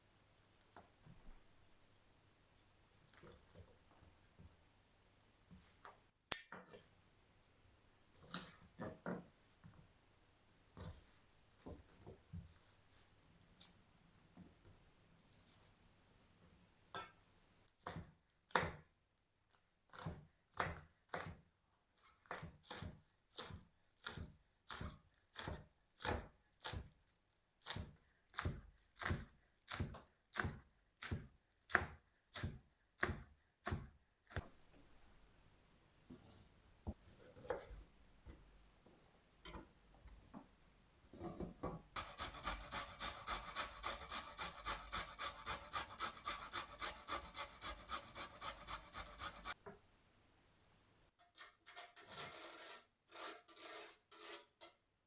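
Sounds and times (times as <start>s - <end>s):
knife chopping on cutting board: 27.7s - 34.4s, 42.0s - 49.6s.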